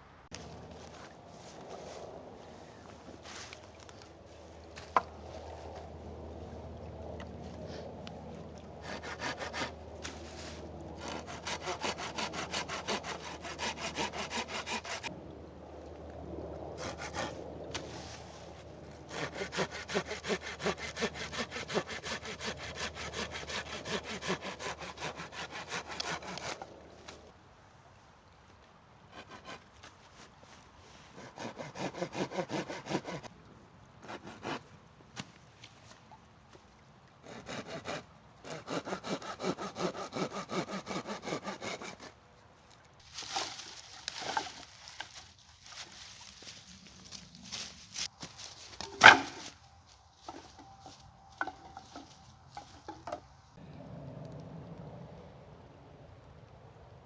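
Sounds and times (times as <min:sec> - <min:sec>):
hand saw cutting wood: 0:08.8 - 0:15.1, 0:16.8 - 0:17.4, 0:19.0 - 0:26.7, 0:29.1 - 0:29.7, 0:31.0 - 0:33.3, 0:34.0 - 0:34.7, 0:37.2 - 0:42.2, 0:49.0 - 0:49.5
rough scraping rustle of wood: 0:08.8 - 0:15.1, 0:43.0 - 0:53.6.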